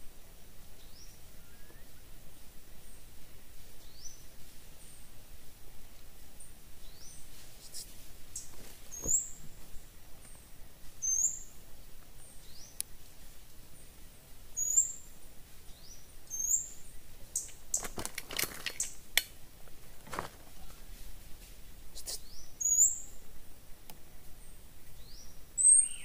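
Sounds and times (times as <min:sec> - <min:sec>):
bird high-pitched call: 0:11.0 - 0:11.5, 0:14.6 - 0:15.0, 0:22.0 - 0:23.2, 0:25.6 - 0:26.0
twigs or leaves crackling: 0:17.4 - 0:21.6.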